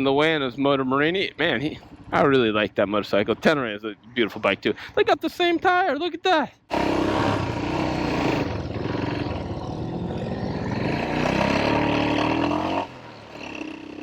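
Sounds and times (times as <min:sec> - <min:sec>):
motorcycle engine accelerating: 0:06.7 - 0:14.0.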